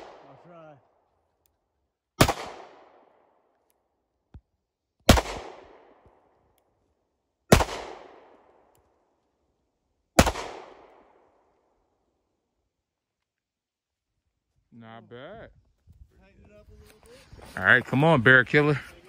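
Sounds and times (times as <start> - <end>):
pistol shots with echo: 0.0 - 0.5, 2.2 - 3.5, 5.0 - 6.3, 7.5 - 8.7, 10.2 - 11.4.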